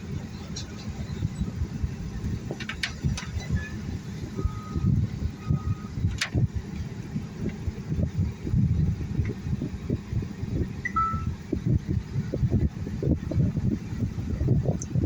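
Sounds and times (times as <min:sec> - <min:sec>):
low uneven rumbling: 0:00.0 - 0:10.8.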